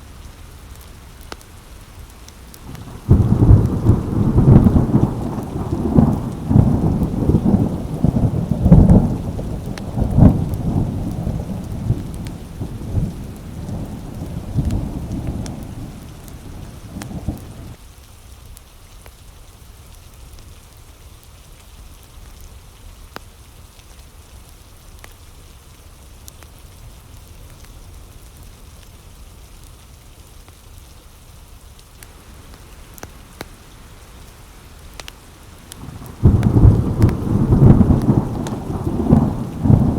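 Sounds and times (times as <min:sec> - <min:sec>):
steady rain pattering: 0:00.0 - 0:39.9
thunder rumbling: 0:02.6 - 0:17.8, 0:32.1 - 0:39.9.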